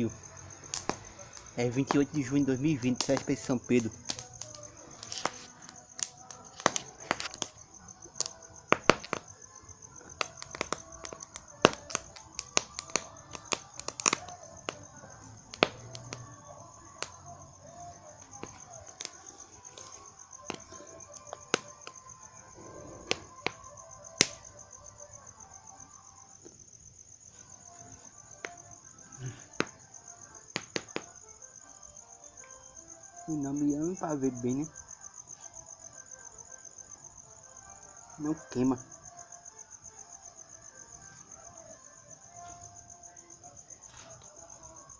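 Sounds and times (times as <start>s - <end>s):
firecrackers banging: 0.0s - 17.4s, 18.2s - 22.2s, 23.0s - 24.5s, 30.4s - 31.2s
crickets chirping: 0.0s - 44.9s.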